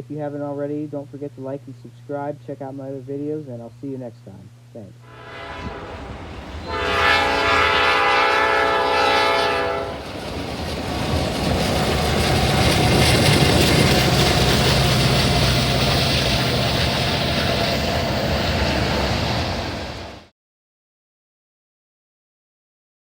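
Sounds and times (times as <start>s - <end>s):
low hum: 0.0s - 20.2s
train horn chord: 5.0s - 10.1s
train rumbling past: 5.0s - 20.3s.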